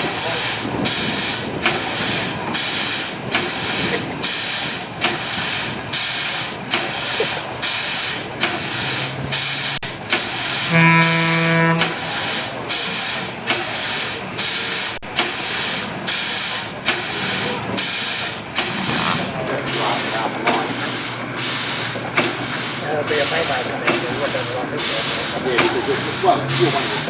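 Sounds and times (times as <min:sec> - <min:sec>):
steam engine exhaust chuffing: 0:00.0 - 0:27.0
low horn-like tone: 0:10.6 - 0:12.0.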